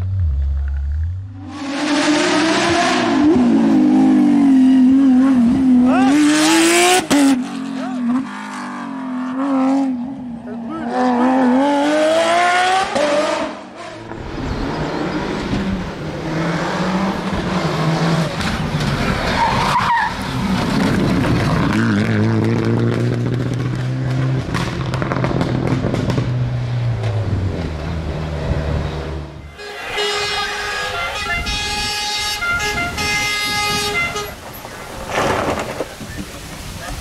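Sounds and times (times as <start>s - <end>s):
rally car engine revving: 0.0s - 37.0s
tyres skidding: 10.4s - 37.0s.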